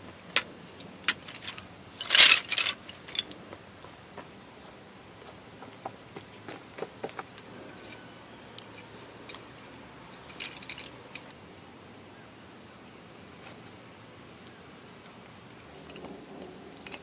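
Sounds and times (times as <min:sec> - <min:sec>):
hard objects clicking and knocking: 0:00.3 - 0:03.6, 0:15.7 - 0:17.0.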